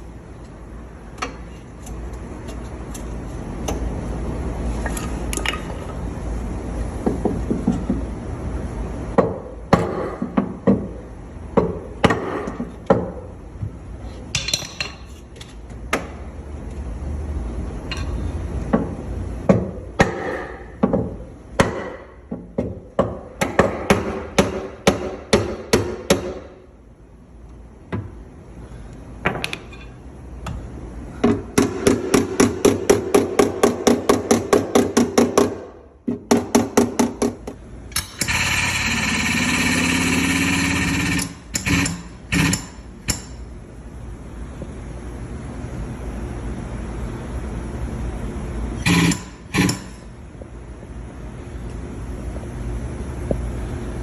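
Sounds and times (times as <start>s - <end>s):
hammer striking car panel: 9.2s - 11.0s, 11.6s - 13.2s, 19.5s - 26.6s, 31.2s - 37.4s.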